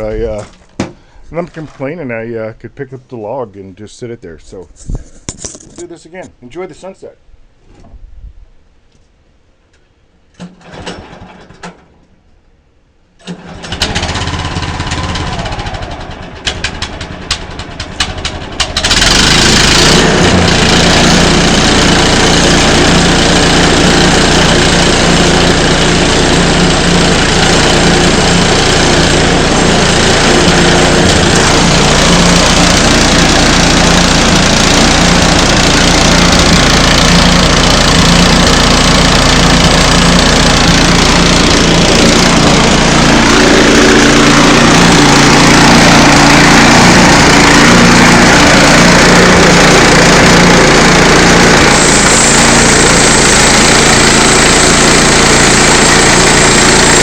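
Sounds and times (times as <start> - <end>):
sawmill engine running: 13.2 - 57.0.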